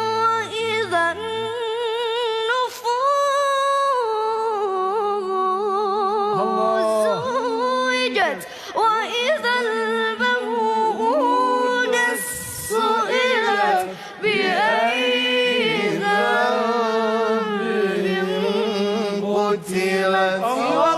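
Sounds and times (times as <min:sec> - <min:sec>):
boy reciting melodically: 0:05.0 - 0:19.2.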